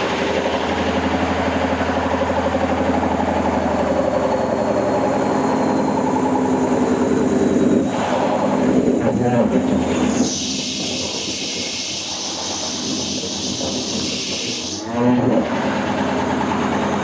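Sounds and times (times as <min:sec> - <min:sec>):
washing machine spinning hum: 0:00.0 - 0:17.0.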